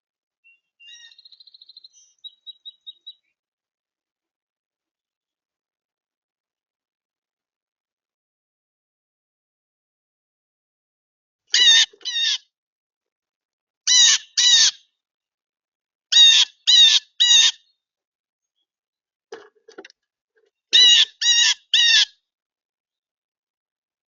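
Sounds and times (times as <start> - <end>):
bird giving harsh calls: 0.8 - 3.2, 11.6 - 12.4, 13.9 - 14.8, 16.1 - 17.6, 20.8 - 22.1.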